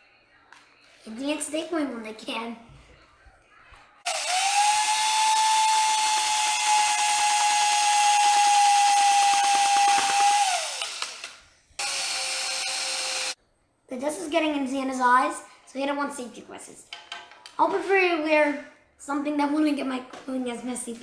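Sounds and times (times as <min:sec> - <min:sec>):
power drill running: 0:04.1 - 0:13.4.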